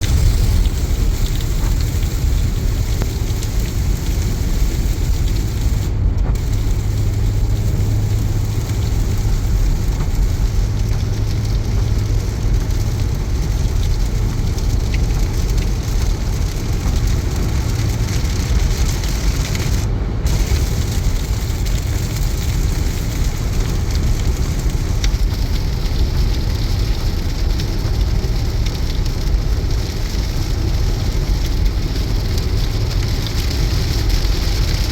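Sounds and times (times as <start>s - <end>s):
heavy rain on a car: 0.0s - 34.9s
tyre and road noise: 0.0s - 34.9s.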